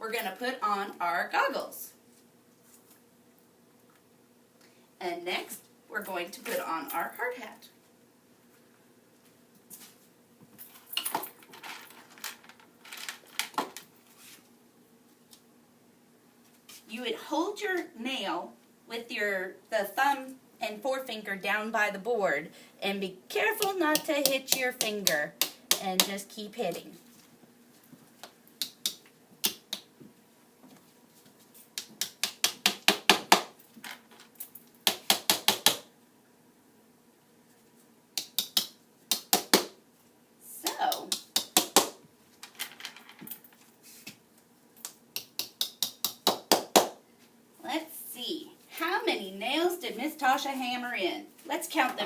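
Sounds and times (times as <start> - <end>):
hammer driving nails into wood: 34.9 - 35.9.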